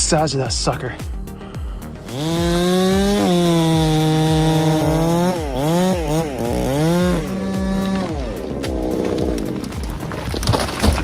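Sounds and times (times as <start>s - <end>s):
chainsaw running at high revs: 1.8s - 10.0s.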